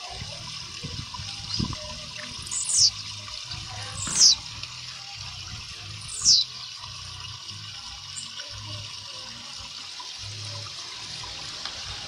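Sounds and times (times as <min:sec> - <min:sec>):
bird singing high notes: 0:02.4 - 0:03.1, 0:03.9 - 0:04.5, 0:06.0 - 0:06.6.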